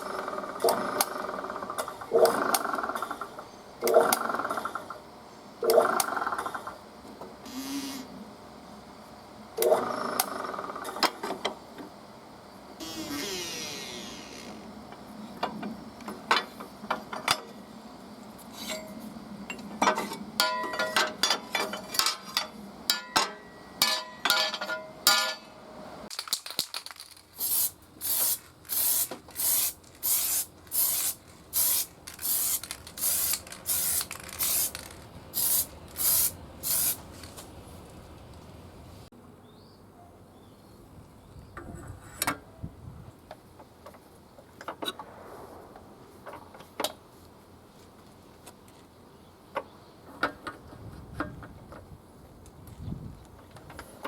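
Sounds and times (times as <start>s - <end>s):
metal tools clinking and knocking: 18.6s - 25.5s.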